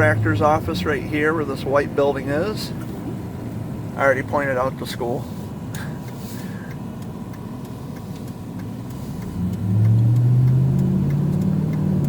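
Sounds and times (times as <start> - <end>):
road noise inside vehicle cabin: 0.0 - 12.0
engine accelerating: 7.3 - 12.0.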